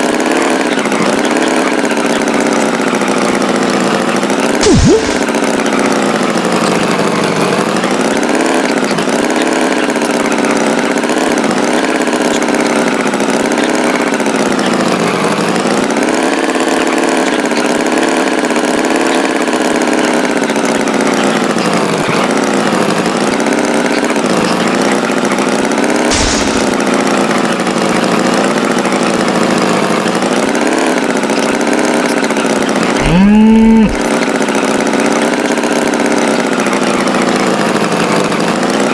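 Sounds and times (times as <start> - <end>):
short loud tone: 33.0 - 34.0.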